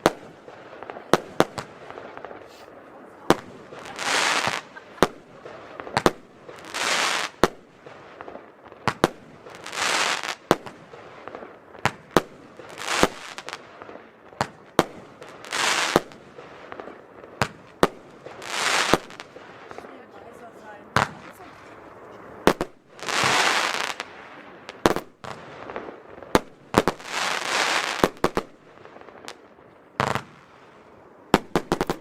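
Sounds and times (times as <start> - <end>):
firework bangs: 0.0 - 32.0
firework rushing hiss: 0.8 - 8.3, 8.9 - 10.6, 18.2 - 19.6, 22.4 - 25.9.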